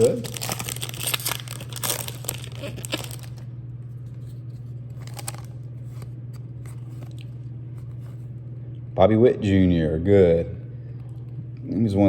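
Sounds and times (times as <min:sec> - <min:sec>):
cards clicking and rustling: 0:00.0 - 0:03.4, 0:05.0 - 0:06.1
foil wrapper crinkling: 0:00.0 - 0:04.3, 0:04.9 - 0:07.4
steady low hum: 0:00.0 - 0:12.0.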